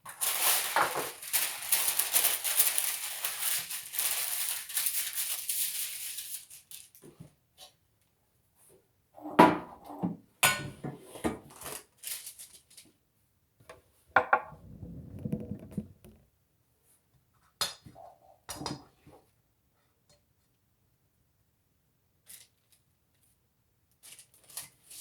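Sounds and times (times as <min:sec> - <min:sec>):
scraping rustle: 0:14.5 - 0:16.2.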